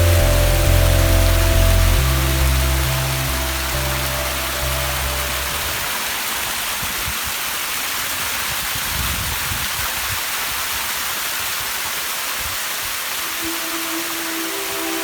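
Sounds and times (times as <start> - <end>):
low rumbles: 0.0 - 6.0
rushing water hiss: 0.0 - 15.0.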